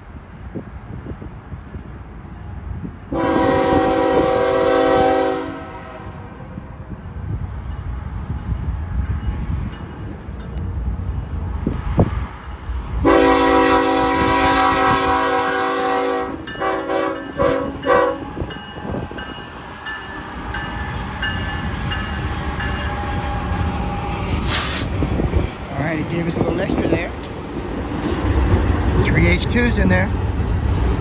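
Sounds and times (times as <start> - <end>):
freight train rumbling past: 0.0 - 31.0
train horn blasts and toots: 3.1 - 6.4, 13.0 - 18.6.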